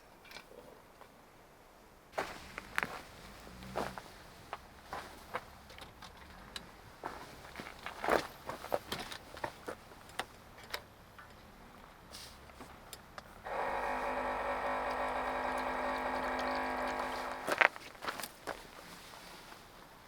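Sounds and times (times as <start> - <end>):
small electric motor whirring: 13.4 - 17.6.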